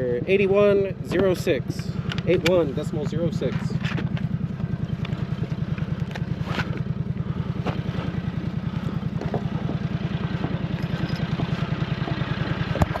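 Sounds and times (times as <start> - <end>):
low mechanical throb: 0.0 - 13.0
faint clicks and clatter: 1.7 - 6.9.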